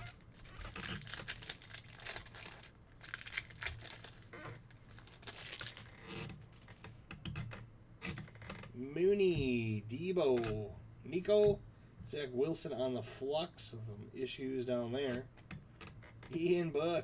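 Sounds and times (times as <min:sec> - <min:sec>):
card packs being torn open: 0:00.0 - 0:06.1
wrappers crinkling: 0:00.0 - 0:06.7.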